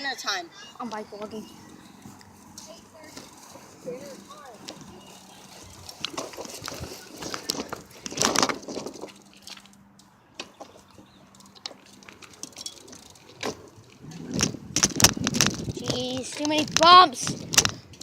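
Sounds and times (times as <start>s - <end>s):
bicycle knocks and rattles: 4.1s - 9.8s, 10.4s - 18.0s.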